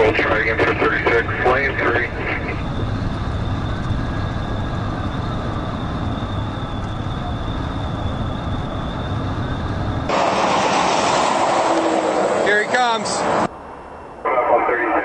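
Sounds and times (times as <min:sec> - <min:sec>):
police car engine and road noise: 0:00.0 - 0:15.0
harsh rush of noise: 0:10.1 - 0:13.5.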